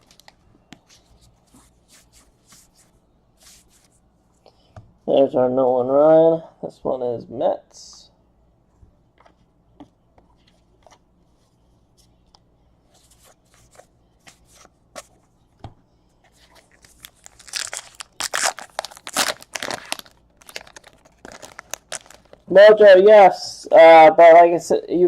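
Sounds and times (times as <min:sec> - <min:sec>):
card pack wrapper tearing: 0:16.7 - 0:22.4.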